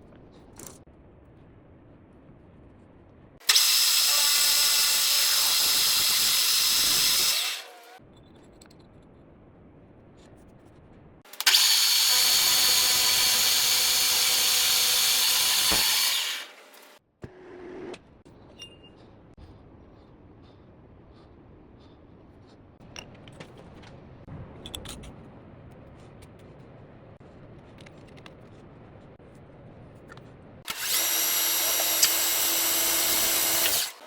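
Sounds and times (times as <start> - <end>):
motorized tool whining: 3.4 - 8.0, 11.3 - 17.0, 30.7 - 34.0.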